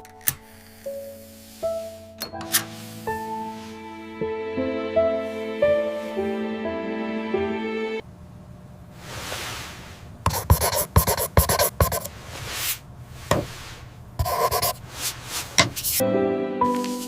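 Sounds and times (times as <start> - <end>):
pen scratching on paper: 10.3 - 12.1, 14.2 - 16.0.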